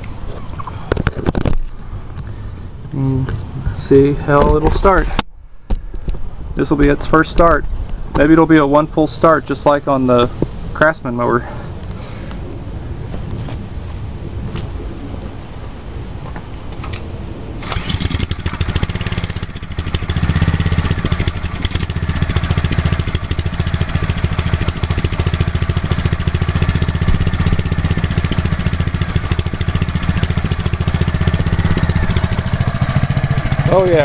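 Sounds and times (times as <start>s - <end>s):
small engine starting and idling: 17.6s - 34.0s.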